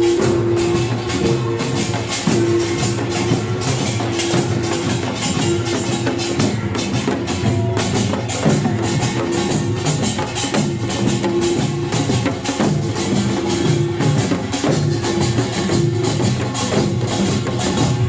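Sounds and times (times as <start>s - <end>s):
barrel drums: 0.0s - 18.0s
hourglass drums: 0.0s - 18.0s
small gongs: 0.0s - 18.0s.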